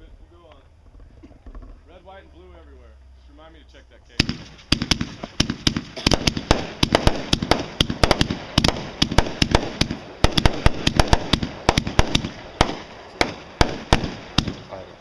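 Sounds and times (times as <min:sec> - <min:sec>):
fireworks bangs and pops: 0:04.2 - 0:14.9
fireworks crackling: 0:04.2 - 0:15.0.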